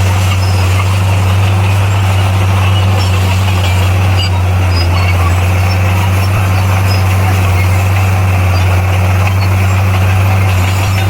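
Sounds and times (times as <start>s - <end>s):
bulldozer diesel engine running: 0.0s - 11.0s.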